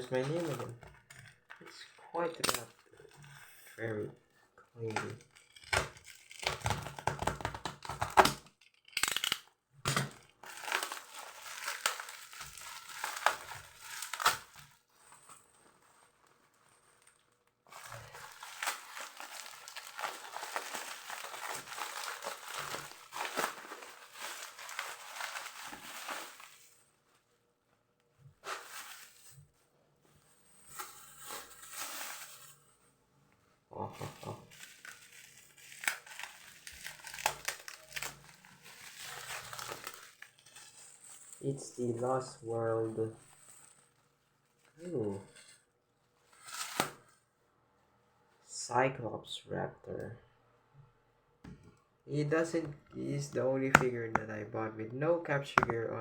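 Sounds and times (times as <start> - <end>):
packaging tearing and crinkling: 0.0 - 3.4, 4.8 - 15.2, 16.0 - 27.0, 28.4 - 29.5, 30.8 - 32.6, 34.0 - 41.4, 46.3 - 47.1.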